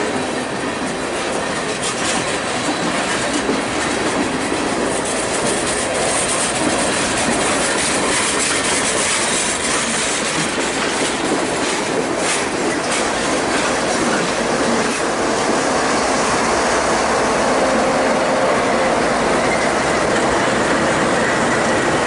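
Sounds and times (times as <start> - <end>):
steel wheels rumbling and clicking: 0.0 - 22.0
faint high wheel squeal: 17.6 - 20.1.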